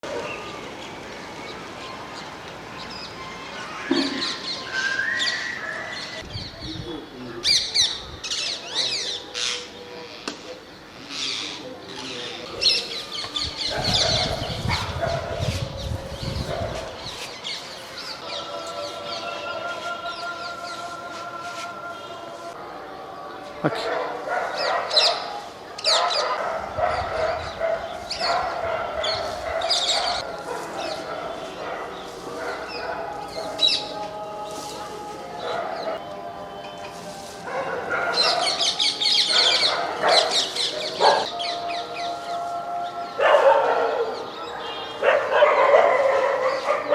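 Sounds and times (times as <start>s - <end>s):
chatter of many birds: 0.0s - 46.9s
parrots chirping and calling: 10.9s - 18.6s, 23.8s - 34.3s, 37.8s - 42.1s.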